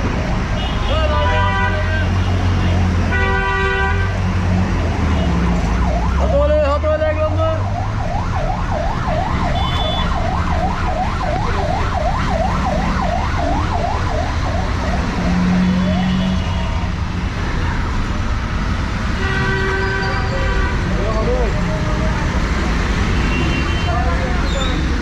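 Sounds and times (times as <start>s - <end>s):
street traffic noise: 0.0s - 25.0s
siren yelping: 7.3s - 16.3s.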